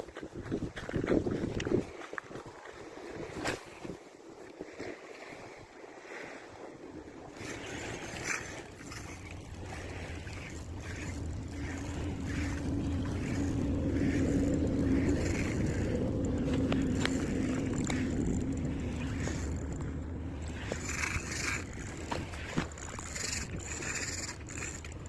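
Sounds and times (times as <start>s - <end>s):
faint swishes: 7.4s - 24.9s
motor humming: 7.4s - 25.0s.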